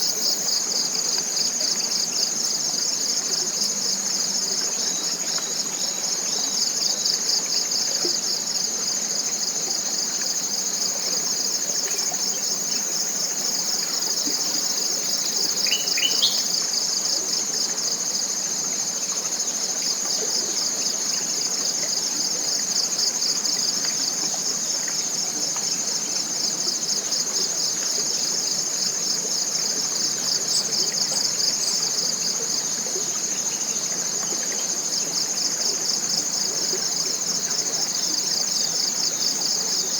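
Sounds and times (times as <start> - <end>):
insects trilling: 0.0 - 39.9
bird chirp: 15.5 - 16.6
faint high chirps: 15.6 - 16.5.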